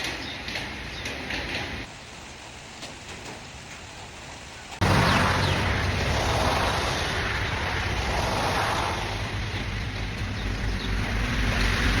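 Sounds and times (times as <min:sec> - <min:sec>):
heavy rain falling: 0:00.0 - 0:12.0
wind rumbling on microphone: 0:03.2 - 0:12.0.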